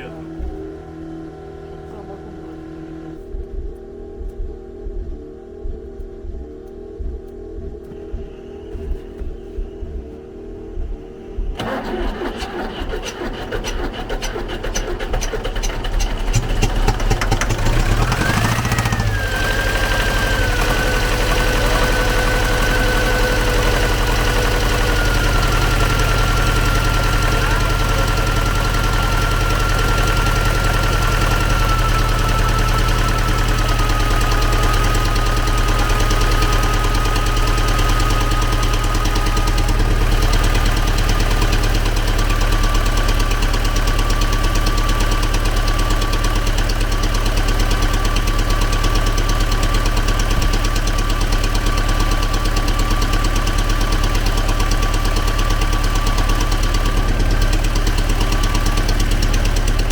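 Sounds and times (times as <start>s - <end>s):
diesel tractor engine idling: 11.3s - 59.9s.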